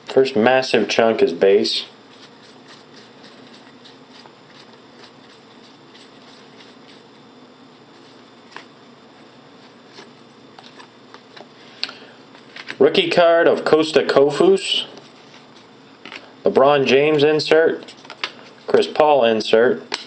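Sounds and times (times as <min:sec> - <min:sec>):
low room hum: 0:00.0 - 0:20.0
cards being flipped by hand: 0:08.0 - 0:08.7, 0:09.6 - 0:11.5.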